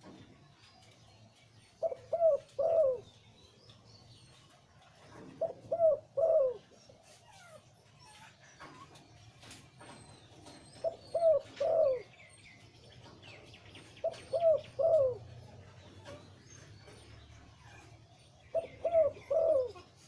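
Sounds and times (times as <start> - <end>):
dove cooing: 1.8 - 3.2, 5.0 - 7.7, 10.4 - 12.2, 13.8 - 16.2, 16.8 - 20.0.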